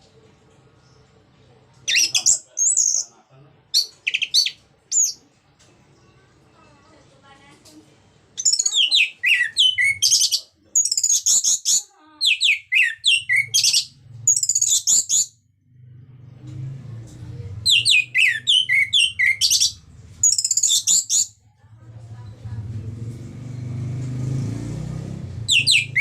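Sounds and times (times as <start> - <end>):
low rumble: 15.4 - 18.2.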